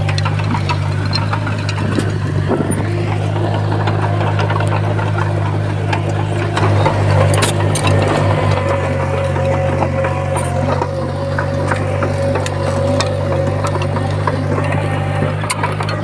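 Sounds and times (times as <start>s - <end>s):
bulldozer diesel engine running: 0.0s - 16.0s
metal clanks and clicks: 0.0s - 16.0s.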